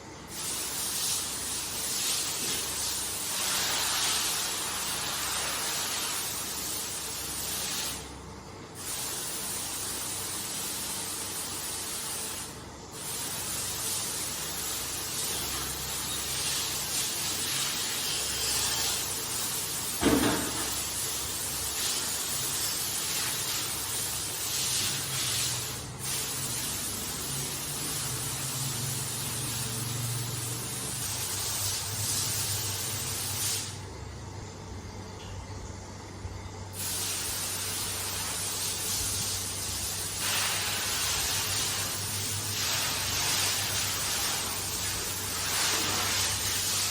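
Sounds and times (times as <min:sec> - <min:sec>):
water sprayer hissing: 0:00.3 - 0:06.7, 0:19.9 - 0:33.8, 0:36.8 - 0:46.9.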